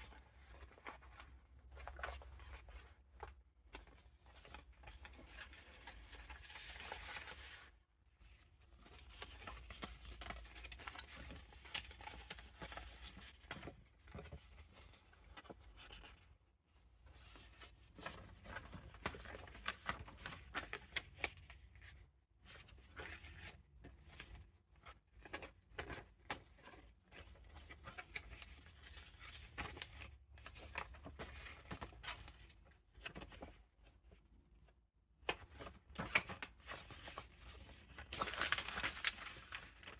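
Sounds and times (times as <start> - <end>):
paper rustling and crinkling: 0.0 - 16.4, 17.1 - 33.7, 35.3 - 39.9.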